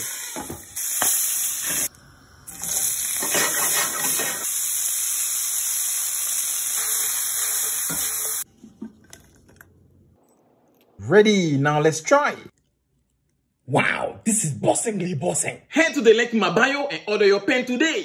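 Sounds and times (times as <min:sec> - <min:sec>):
food sizzling in hot oil: 0:00.0 - 0:08.5.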